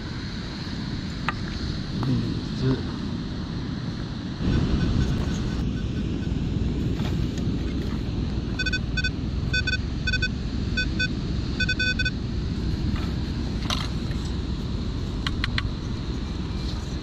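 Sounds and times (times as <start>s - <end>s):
metal detector beeping: 8.6s - 12.2s.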